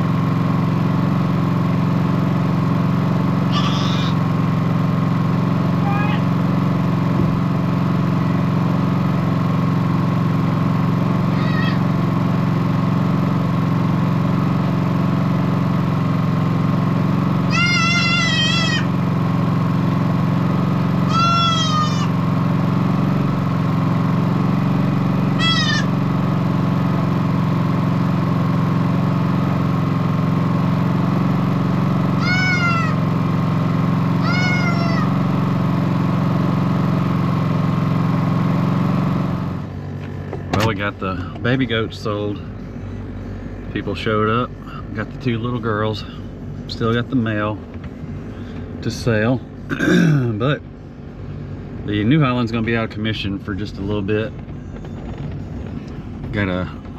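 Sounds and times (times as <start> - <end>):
steady engine hum: 0.0 - 56.9
baby goats bleating: 3.5 - 4.2, 11.4 - 11.9, 17.5 - 18.9, 21.1 - 22.2, 25.4 - 26.0, 32.2 - 33.0, 34.2 - 35.2.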